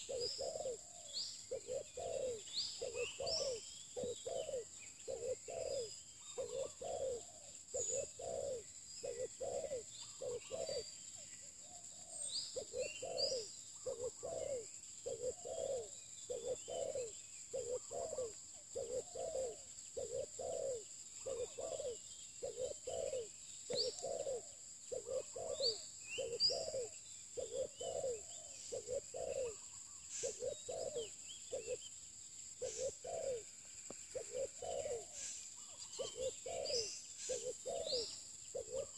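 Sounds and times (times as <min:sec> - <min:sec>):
doves cooing: 0:00.0 - 0:11.0, 0:11.6 - 0:31.9, 0:32.6 - 0:38.9
small birds chirping: 0:00.0 - 0:38.9.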